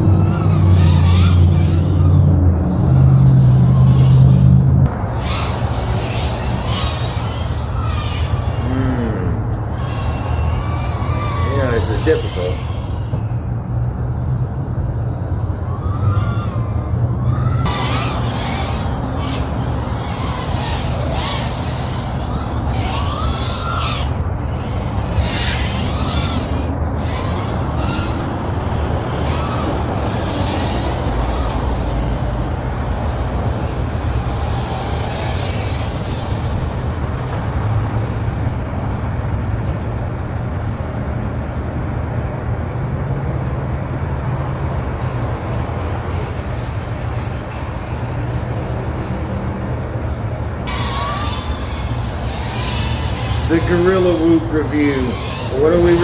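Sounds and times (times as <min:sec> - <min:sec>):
wind buffeting microphone: 0:00.0 - 0:08.6, 0:09.4 - 0:43.0
quadcopter motors whine: 0:00.0 - 0:56.0.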